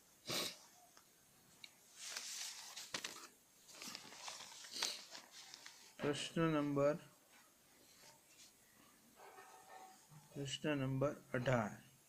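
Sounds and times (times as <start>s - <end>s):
faint rustling: 1.6s - 6.5s, 7.2s - 10.4s.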